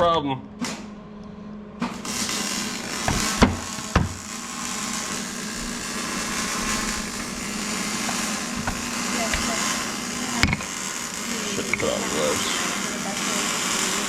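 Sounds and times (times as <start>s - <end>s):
steady hiss: 2.0s - 14.0s
metal parts knocking: 6.2s - 10.9s.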